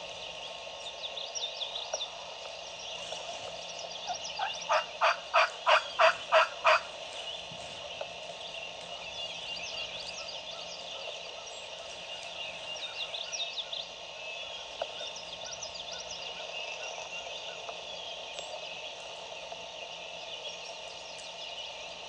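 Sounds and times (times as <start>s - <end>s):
insects chirring: 0.0s - 22.0s
songbird chirping: 0.0s - 22.0s
frogs calling: 3.4s - 18.2s.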